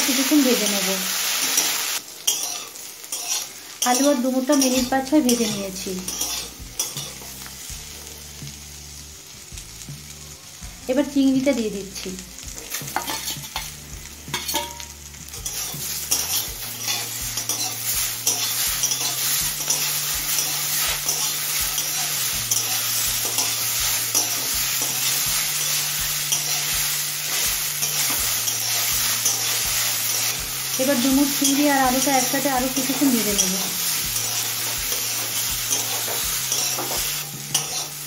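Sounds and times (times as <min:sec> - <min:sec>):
food sizzling in a wok: 0:00.0 - 0:38.0
spatula scraping pan: 0:01.6 - 0:05.4, 0:15.4 - 0:30.4, 0:32.8 - 0:38.0.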